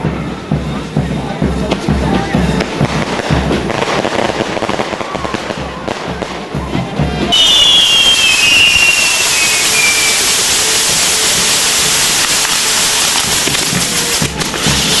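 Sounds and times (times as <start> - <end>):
fireworks fountains hissing: 0.0 - 15.0
fireworks whistles sliding down: 7.3 - 15.0.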